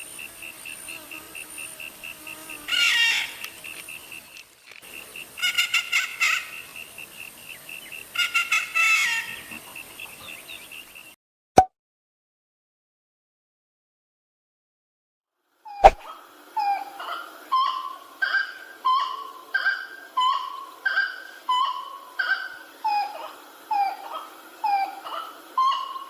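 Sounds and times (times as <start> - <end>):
rapid complex bird calls: 4.9 - 11.0.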